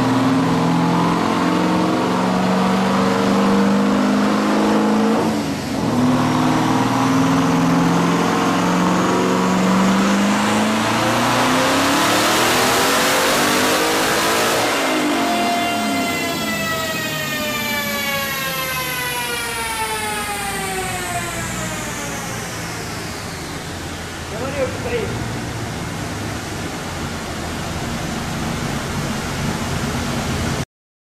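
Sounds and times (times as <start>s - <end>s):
car engine revving on a dyno: 0.0s - 30.6s.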